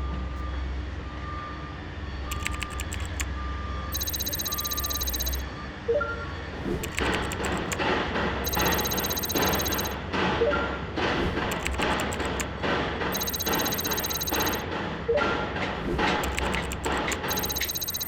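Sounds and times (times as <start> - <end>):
reversing alarm beeping: 2.3 - 3.3, 4.0 - 5.5, 6.8 - 7.8, 8.5 - 10.0, 11.4 - 12.5, 13.2 - 14.6, 16.2 - 18.0.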